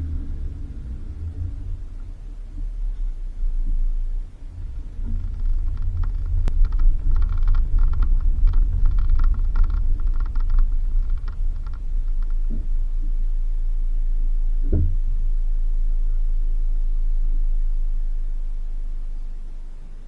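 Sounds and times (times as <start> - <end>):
engine and road rumble: 0.0 - 20.0
clattering rattle: 4.4 - 12.7.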